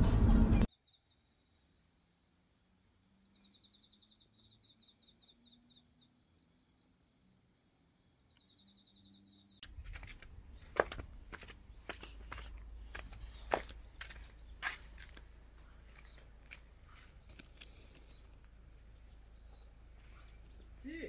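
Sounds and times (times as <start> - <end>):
outdoor background noise: 0.0 - 21.0
faint insect chirping: 0.7 - 21.0
scuffs: 9.6 - 18.4.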